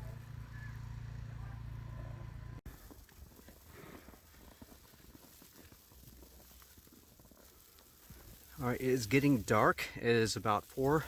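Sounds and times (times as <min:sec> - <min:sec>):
low hum: 0:00.0 - 0:04.5
footsteps crunching in snow: 0:02.7 - 0:09.4.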